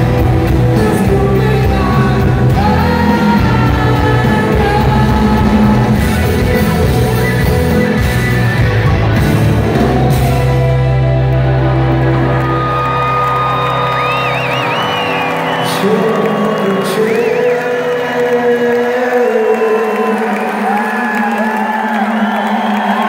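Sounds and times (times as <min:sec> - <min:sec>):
man singing: 0:00.0 - 0:08.0, 0:15.5 - 0:23.0
distorted guitars: 0:00.0 - 0:18.2
drums: 0:00.0 - 0:18.9
live rock band: 0:00.0 - 0:21.4.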